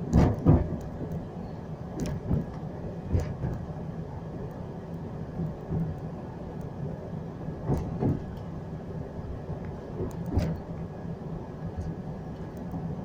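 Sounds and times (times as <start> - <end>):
train clunks: 0.0 - 1.2, 1.9 - 3.8, 5.3 - 6.0, 7.6 - 8.6, 9.6 - 10.8
train running rumble: 0.0 - 13.0.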